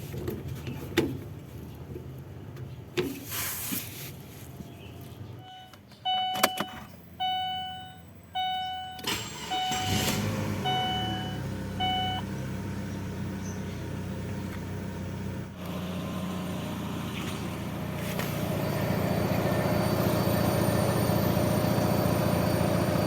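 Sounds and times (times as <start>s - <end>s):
car engine cranking and idling: 4.7s - 23.0s
dashboard warning chime: 5.4s - 12.3s.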